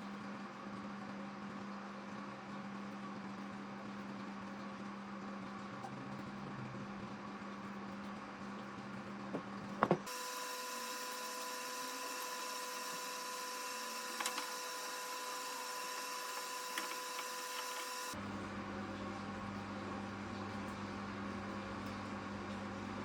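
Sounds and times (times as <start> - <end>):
power tool motor whining: 10.1 - 18.2.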